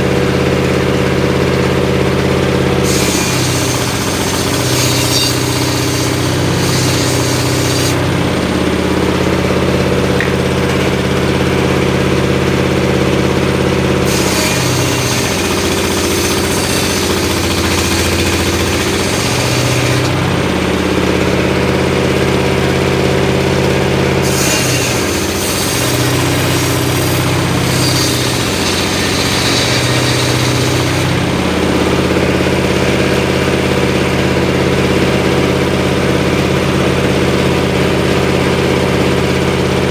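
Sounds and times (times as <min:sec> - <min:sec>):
engine-driven circular saw running: 0:00.0 - 0:39.9
saw blade ripping wood: 0:02.7 - 0:08.3, 0:14.0 - 0:20.5, 0:24.1 - 0:33.0.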